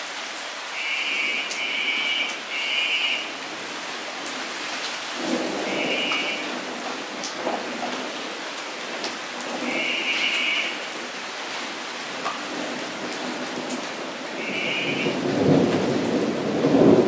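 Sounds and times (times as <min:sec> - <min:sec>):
rain pattering on wet pavement: 0:00.0 - 0:17.0.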